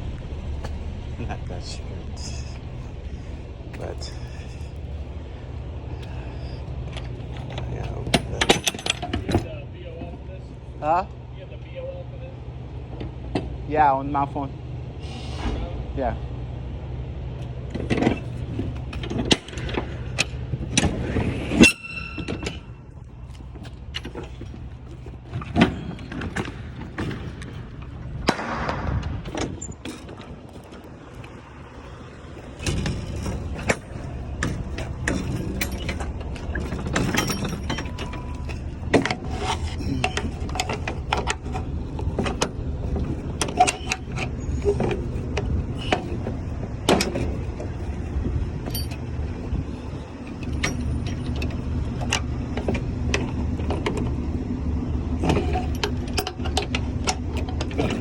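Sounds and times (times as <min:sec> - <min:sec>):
diesel engine idling: 0:00.0 - 0:58.0
ringing metallic clank: 0:21.5 - 0:23.0, 0:32.4 - 0:40.8, 0:48.7 - 0:49.1.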